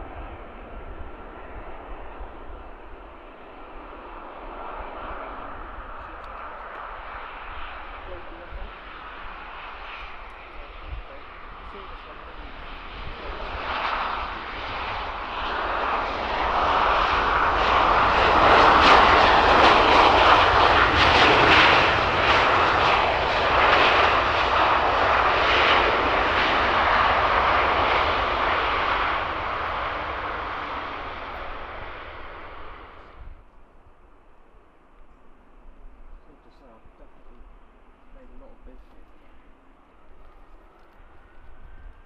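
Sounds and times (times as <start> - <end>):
jet engines passing: 0.0 - 42.0.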